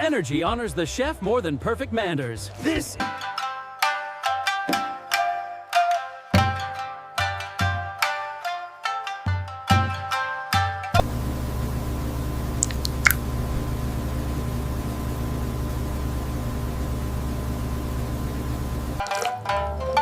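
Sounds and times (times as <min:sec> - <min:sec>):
low mechanical hum with hiss: 0:11.0 - 0:19.0.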